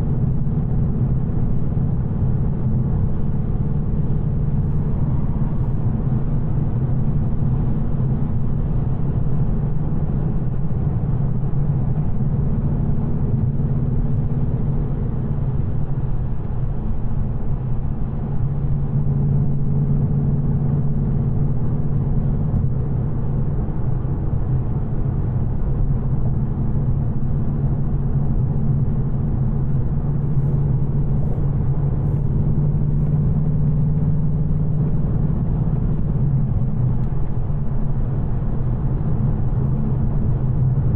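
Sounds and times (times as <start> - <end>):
car engine cruising: 0.0 - 40.9.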